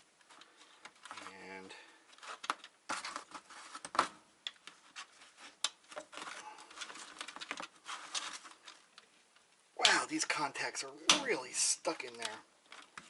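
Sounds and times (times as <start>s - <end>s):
plastic and metal parts rattling: 0.2s - 9.2s, 12.0s - 13.0s.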